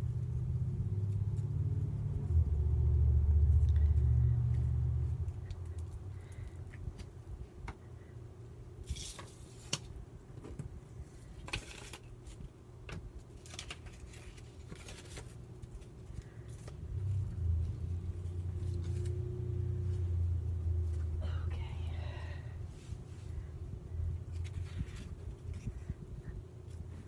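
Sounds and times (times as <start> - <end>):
low steady rumble: 0.0 - 27.0
paper rustling and scraping: 8.8 - 10.0, 11.1 - 12.5, 13.2 - 20.0, 24.2 - 26.0.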